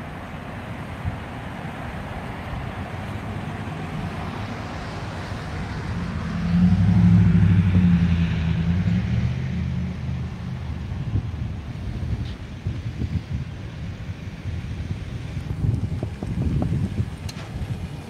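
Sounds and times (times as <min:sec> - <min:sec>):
car engine idling: 0:09.9 - 0:18.0.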